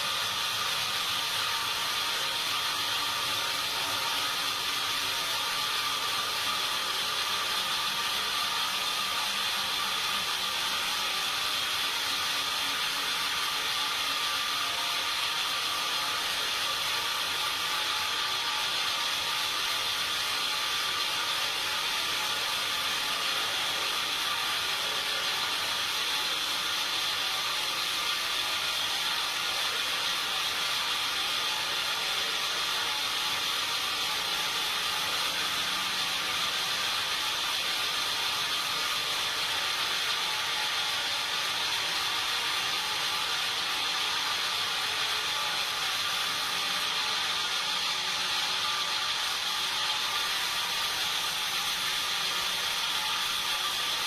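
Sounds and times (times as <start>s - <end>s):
sawmill machinery running: 0.0s - 54.0s.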